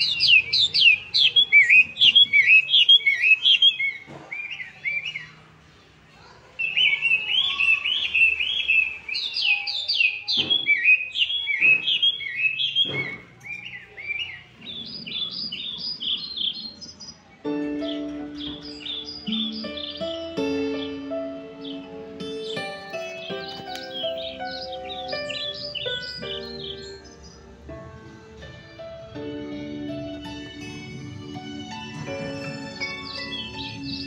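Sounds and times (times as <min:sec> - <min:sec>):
music: 0:00.0 - 0:03.4, 0:17.4 - 0:34.0
birds chirping: 0:00.0 - 0:34.0.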